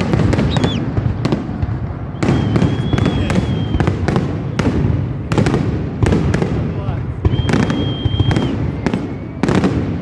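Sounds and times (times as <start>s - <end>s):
falling firework whistle: 0.0s - 5.0s, 7.2s - 10.0s
fireworks bangs and bursts: 0.0s - 10.0s
steady high whistle: 0.3s - 1.1s, 2.1s - 4.8s, 7.3s - 10.0s.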